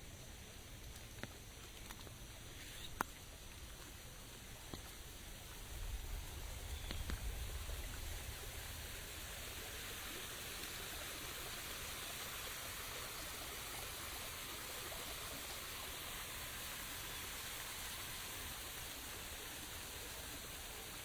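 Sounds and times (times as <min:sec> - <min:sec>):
rain falling: 0:03.4 - 0:21.0
low rumble: 0:05.6 - 0:09.9.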